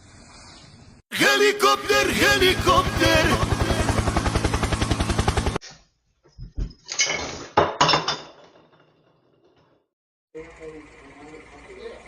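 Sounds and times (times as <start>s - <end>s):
objects knocking and clattering: 6.3s - 9.8s
fast pulsing whirr: 10.4s - 12.0s.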